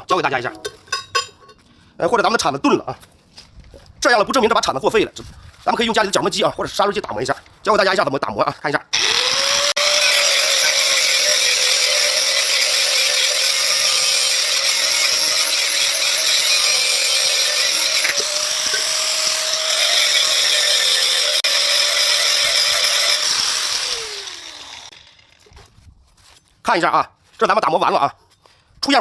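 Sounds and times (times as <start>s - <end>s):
electric grinder whining: 8.9s - 25.5s.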